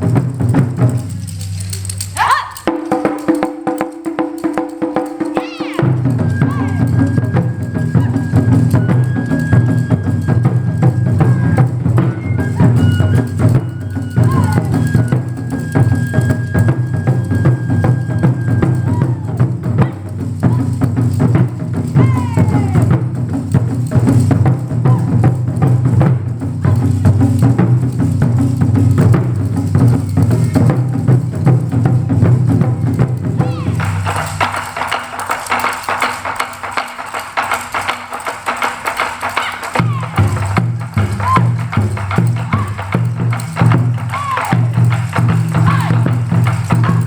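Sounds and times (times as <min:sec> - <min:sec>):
taiko drums playing: 0:00.0 - 0:47.0.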